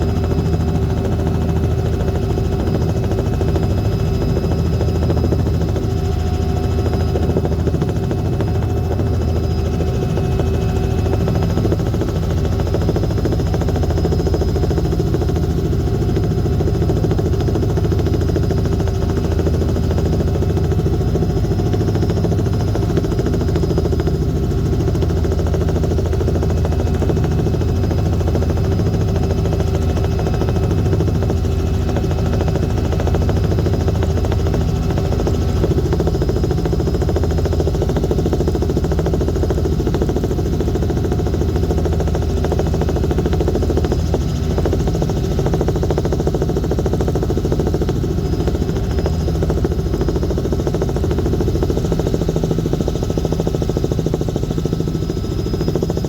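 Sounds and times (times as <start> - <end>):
aircraft engine drone: 0.0 - 56.0.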